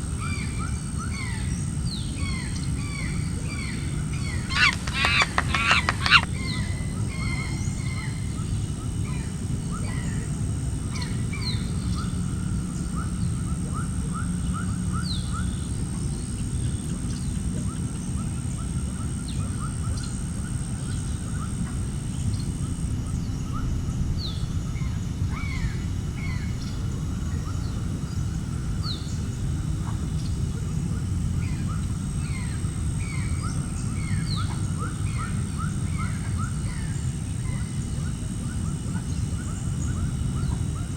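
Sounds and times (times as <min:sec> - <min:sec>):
birds chirping: 0:04.2 - 0:07.9.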